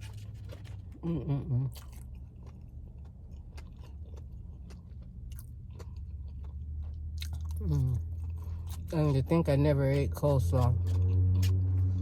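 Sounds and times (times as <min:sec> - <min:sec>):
low steady hum: 0:00.0 - 0:12.0
person chewing food: 0:00.0 - 0:12.0.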